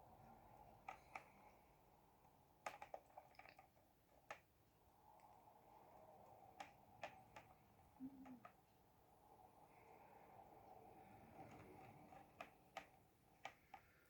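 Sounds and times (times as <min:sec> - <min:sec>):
clicks and taps of plastic model: 0:02.6 - 0:04.5, 0:11.4 - 0:14.0.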